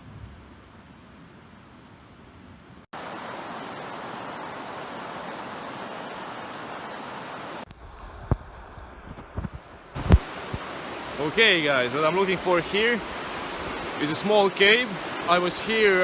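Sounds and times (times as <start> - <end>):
creek water rushing: 2.9 - 7.7, 9.7 - 16.0.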